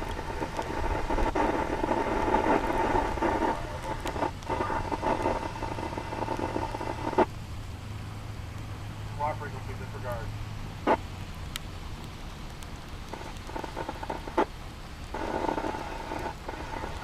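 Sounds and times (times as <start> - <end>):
garbled radio transmission: 0.0 - 7.3, 9.2 - 11.0, 13.1 - 14.5, 15.1 - 17.0
radio squelch click: 0.0 - 7.3, 10.8 - 11.7, 12.6 - 14.5, 15.1 - 17.0.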